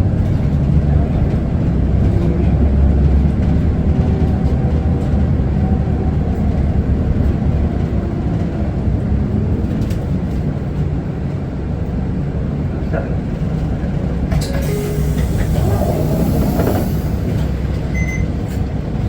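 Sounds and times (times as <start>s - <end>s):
bus diesel engine rumble: 0.0s - 19.0s
road noise: 0.0s - 19.0s.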